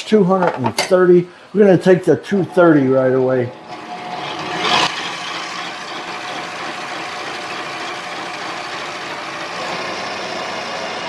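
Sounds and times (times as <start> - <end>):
lathe motor whirring: 2.4 - 11.0.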